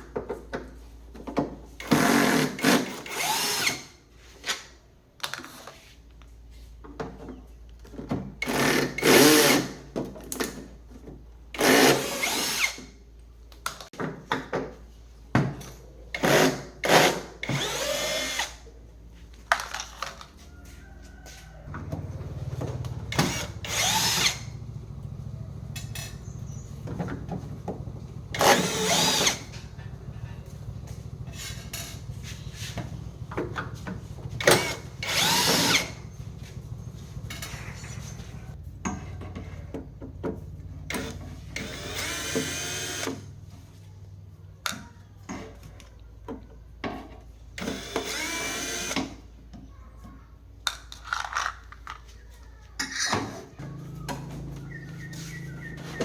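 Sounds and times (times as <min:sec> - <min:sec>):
small power tool bursts: 0:22.9 - 0:26.8, 0:28.1 - 0:29.8, 0:34.3 - 0:37.5, 0:40.9 - 0:43.2, 0:47.6 - 0:49.0.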